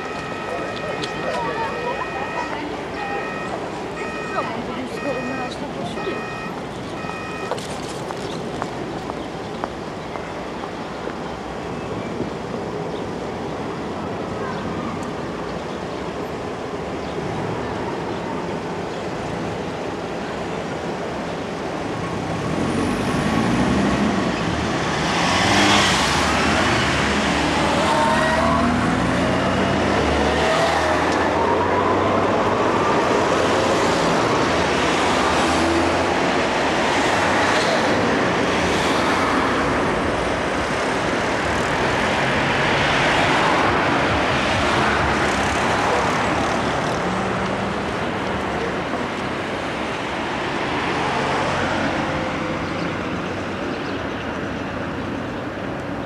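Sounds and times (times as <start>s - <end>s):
vehicles pulling away: 19.2s - 56.0s.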